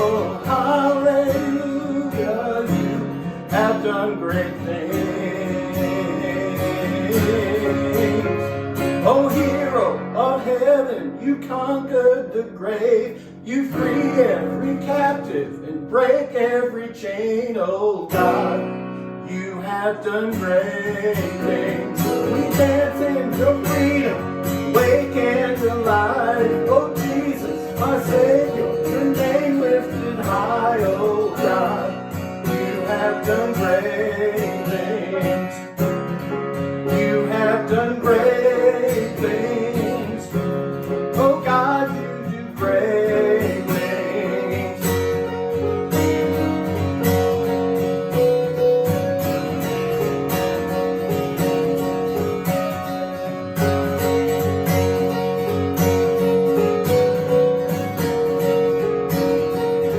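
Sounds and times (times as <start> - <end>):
person singing: 0.0 - 36.0, 36.7 - 45.6
strummed acoustic guitar: 0.0 - 59.9.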